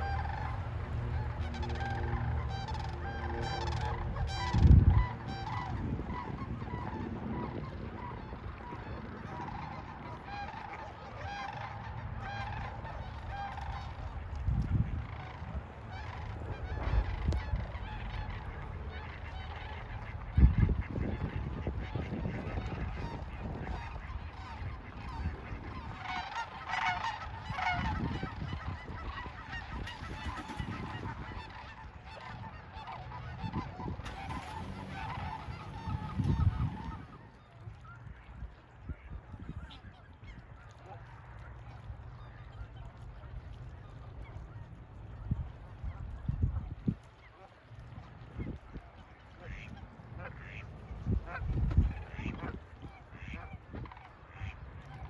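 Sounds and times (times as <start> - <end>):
geese honking: 0.0 - 55.0.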